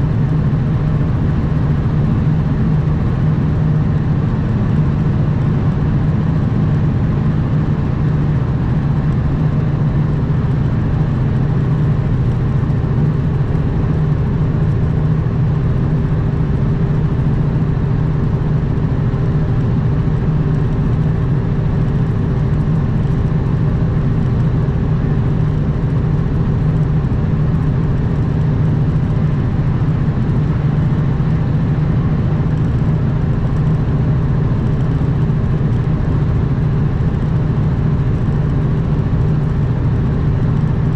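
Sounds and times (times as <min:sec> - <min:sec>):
truck diesel engine droning: 0:00.0 - 0:40.9.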